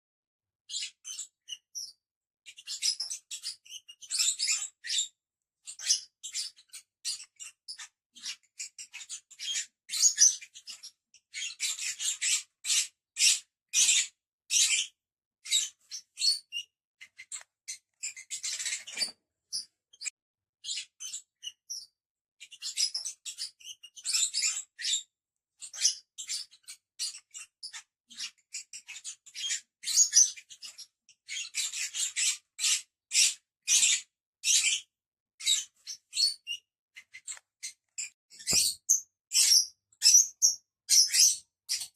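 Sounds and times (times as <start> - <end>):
lovebirds chirping: 35.5 - 41.9.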